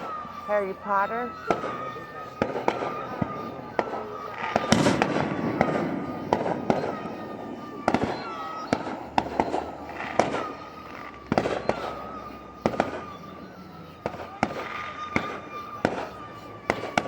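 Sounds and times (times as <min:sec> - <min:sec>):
falling firework whistles: 0:00.0 - 0:17.0
fireworks bangs: 0:00.0 - 0:17.0.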